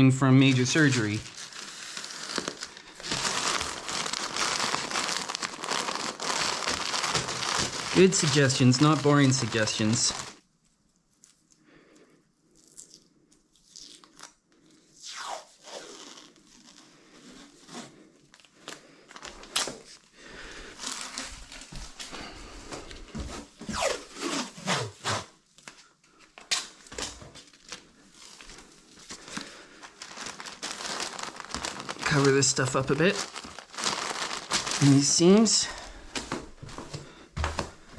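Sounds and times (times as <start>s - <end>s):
plastic crinkling and tearing: 0.2s - 11.6s, 20.7s - 22.2s, 26.3s - 36.8s.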